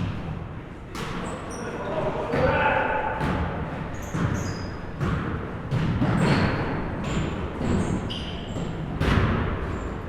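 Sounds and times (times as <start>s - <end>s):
sneaker squeaks: 0.9s - 2.7s, 3.8s - 9.0s
basketball bouncing on gym floor: 3.2s - 9.9s.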